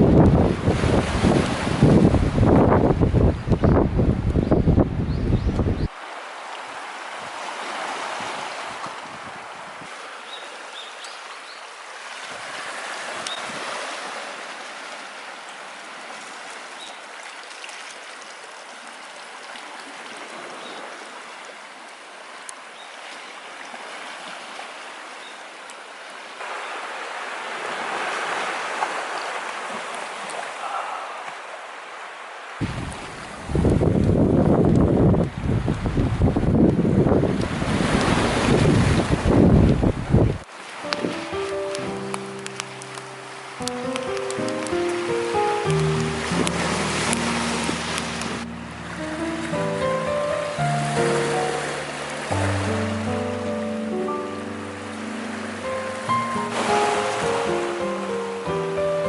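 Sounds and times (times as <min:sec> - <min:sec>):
fire crackles: 0:40.8 - 0:48.6.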